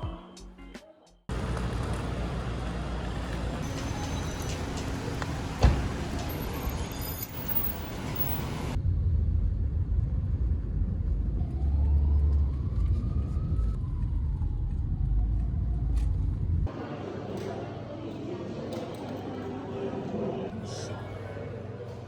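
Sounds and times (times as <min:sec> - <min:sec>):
vehicle rumble from inside: 0:01.3 - 0:16.7.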